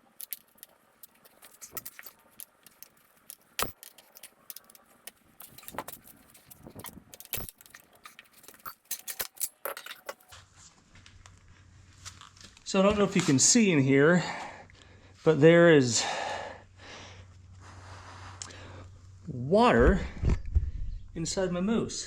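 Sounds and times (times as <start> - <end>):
metal tire spoons clinking on rim: 5.4 - 10.3.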